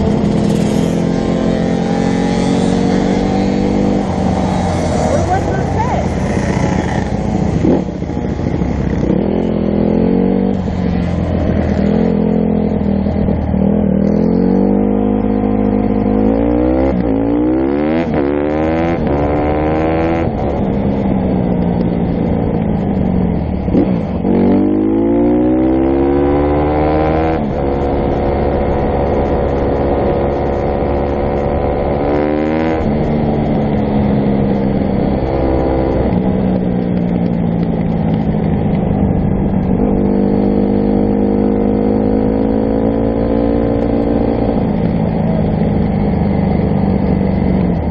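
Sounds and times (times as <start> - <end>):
dirt bike engine revving: 0.0 - 8.0.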